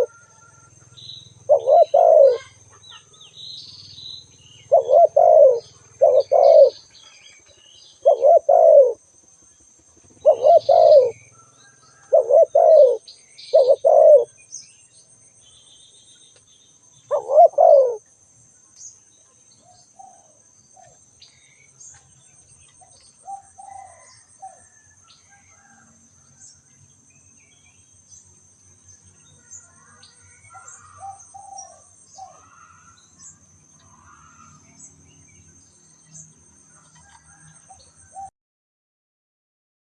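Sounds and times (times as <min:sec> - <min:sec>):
dove cooing: 0:00.0 - 0:00.3, 0:01.4 - 0:03.1, 0:04.5 - 0:06.9, 0:08.0 - 0:09.0, 0:10.1 - 0:11.2, 0:12.0 - 0:14.4, 0:17.1 - 0:18.0, 0:23.2 - 0:24.8, 0:29.7 - 0:33.0
faint bird chirps: 0:00.0 - 0:09.0.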